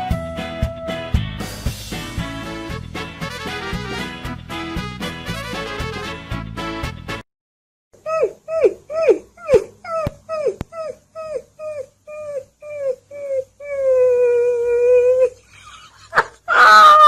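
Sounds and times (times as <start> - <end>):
puppy howling: 8.1 - 15.4
puppy whimpering: 8.1 - 15.4.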